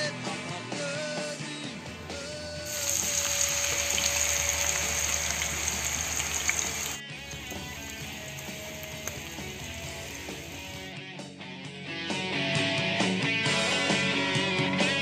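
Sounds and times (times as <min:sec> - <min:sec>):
background music: 0:00.0 - 0:15.0
onions sizzling in a frying pan: 0:02.7 - 0:10.9.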